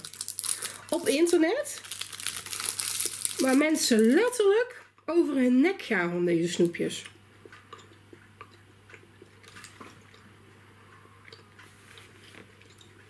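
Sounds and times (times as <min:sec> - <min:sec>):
faint chewing: 0:07.0 - 0:13.0.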